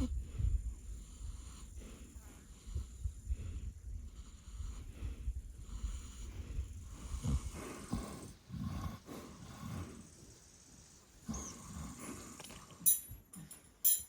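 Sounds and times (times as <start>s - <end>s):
farm animal breathing: 0.0s - 12.9s.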